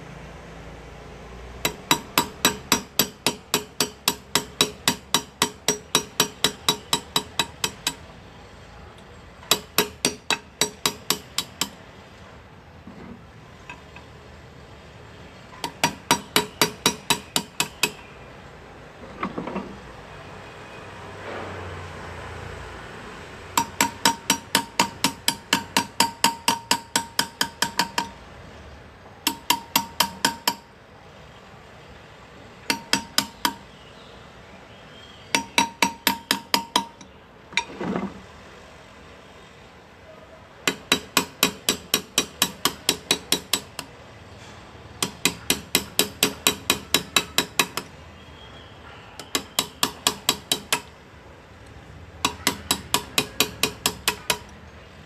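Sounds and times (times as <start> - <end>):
hammer tapping metal graver: 1.6 - 8.1, 9.4 - 11.8, 15.6 - 18.1, 23.5 - 28.2, 29.2 - 30.8, 32.6 - 33.7, 35.3 - 38.2, 40.6 - 48.0, 49.2 - 51.0, 52.2 - 54.6.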